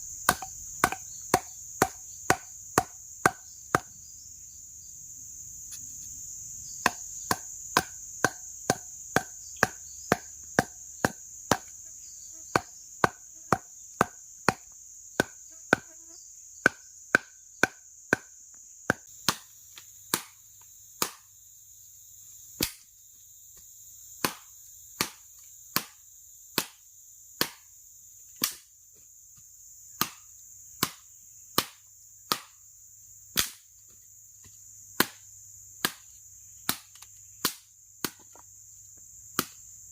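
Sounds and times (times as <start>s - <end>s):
forest insects chorus: 0.0s - 39.9s
blade chopping wood: 0.2s - 4.0s, 6.8s - 11.8s, 12.5s - 15.9s, 16.6s - 18.3s, 18.9s - 20.4s, 21.0s - 21.3s, 24.2s - 26.8s, 27.4s - 27.7s, 28.4s - 28.7s, 30.0s - 32.6s, 33.3s - 33.7s, 35.0s - 35.2s, 35.8s - 38.4s, 39.4s - 39.6s.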